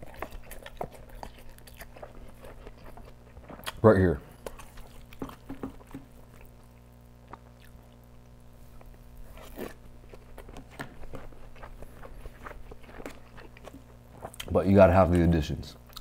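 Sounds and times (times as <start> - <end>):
chewing with soft crunches: 0.0 - 16.0
wet mouth clicks: 2.7 - 3.8.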